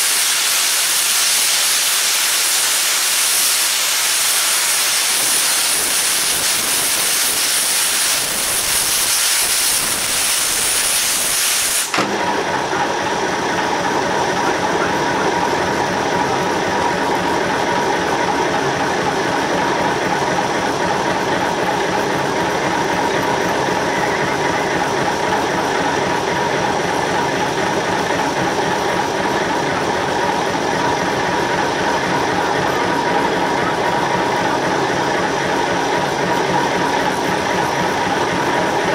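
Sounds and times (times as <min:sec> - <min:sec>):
steam hissing: 0:00.0 - 0:12.2
machinery whine: 0:00.0 - 0:38.9.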